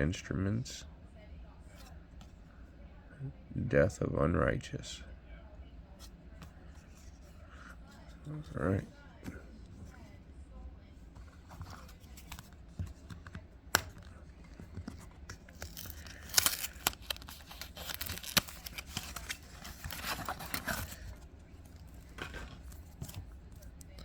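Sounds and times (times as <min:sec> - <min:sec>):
wrapper tearing and crinkling: 0:15.5 - 0:21.1.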